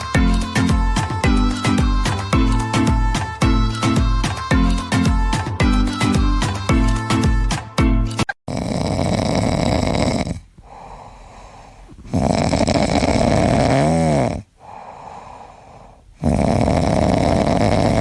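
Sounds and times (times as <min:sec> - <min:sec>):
whine in snore: 0:08.5 - 0:11.0, 0:12.0 - 0:14.8, 0:15.8 - 0:18.0
pet snoring loudly: 0:08.5 - 0:18.0
quiet breaths: 0:09.0 - 0:18.0.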